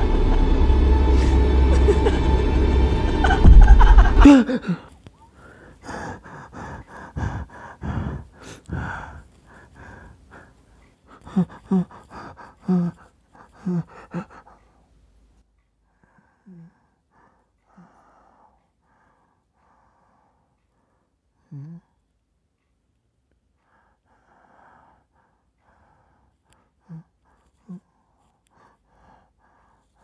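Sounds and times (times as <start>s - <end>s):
falling tone: 0.0s - 4.6s
eerie film music: 0.0s - 10.5s, 11.2s - 14.6s
man breathing heavily: 2.5s - 15.0s, 15.8s - 22.0s, 23.5s - 30.0s.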